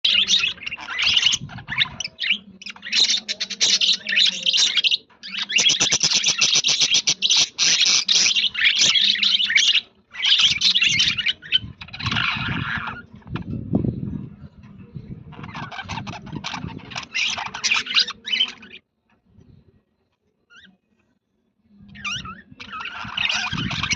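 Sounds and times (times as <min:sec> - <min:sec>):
budgerigars chattering and warbling: 0:00.0 - 0:13.6, 0:15.3 - 0:18.8, 0:21.9 - 0:23.9.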